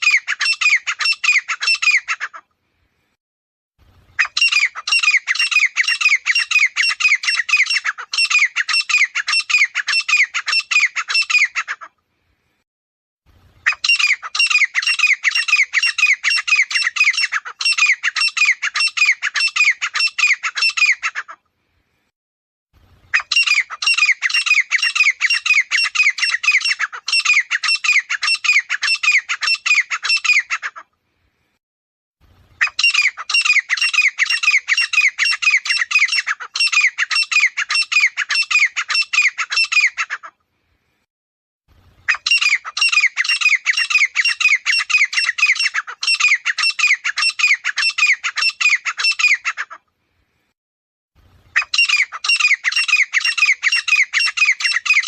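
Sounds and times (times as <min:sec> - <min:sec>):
francolin calling: 0:51.5 - 0:55.0.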